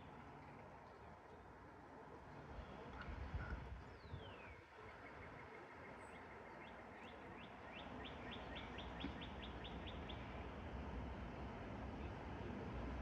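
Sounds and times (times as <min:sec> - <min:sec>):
low background noise: 0:00.0 - 0:13.0
songbird singing: 0:03.9 - 0:10.3.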